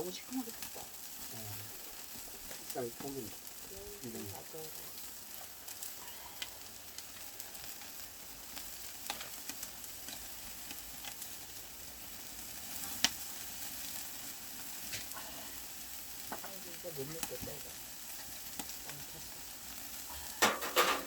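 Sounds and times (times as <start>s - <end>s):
fire crackling and popping: 0.0s - 21.0s
meat sizzling on a grill: 0.0s - 21.0s.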